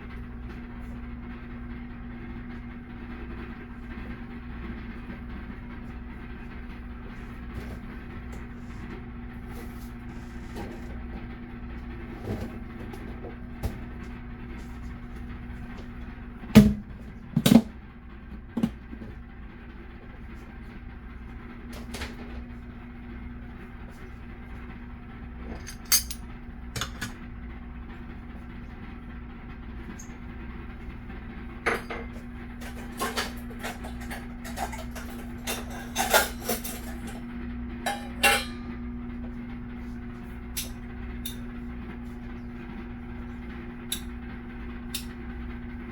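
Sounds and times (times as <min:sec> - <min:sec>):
steady low hum: 0:00.0 - 0:45.9
dishes and utensils clinking: 0:25.5 - 0:26.2, 0:33.0 - 0:37.2, 0:37.9 - 0:38.7.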